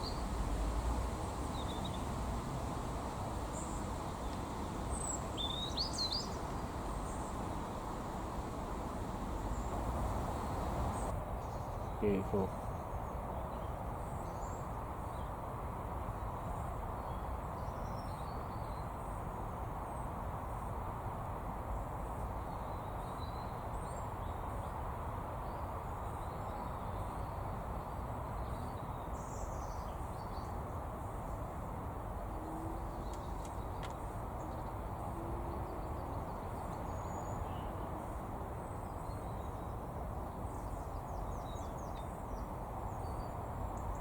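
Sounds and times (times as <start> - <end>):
low rumble and hiss: 0.0 - 12.8
faint bird chirps: 3.5 - 11.1.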